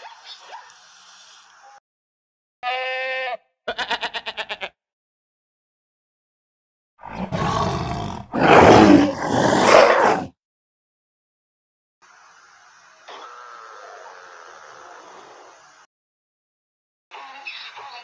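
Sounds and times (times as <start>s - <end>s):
goat bleating: 2.6s - 4.8s
tiger roaring: 7.0s - 10.3s.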